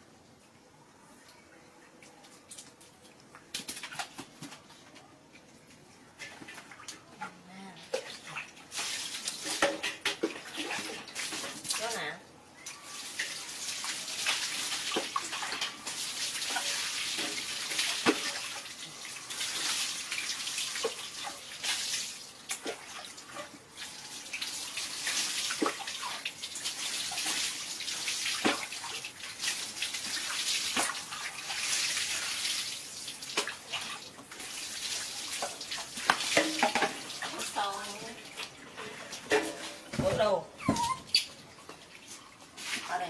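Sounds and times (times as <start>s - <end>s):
water running: 5.6s - 43.0s
sharp water splashes and drops: 7.8s - 40.1s.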